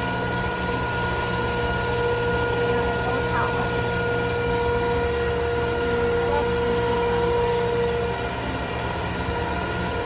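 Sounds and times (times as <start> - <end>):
boat motor running: 0.0 - 10.0
humming tone: 0.0 - 10.0.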